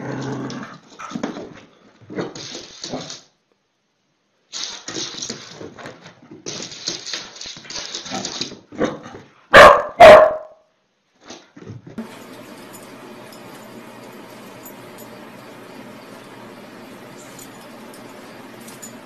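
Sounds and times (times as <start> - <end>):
dog barking: 9.5 - 10.6.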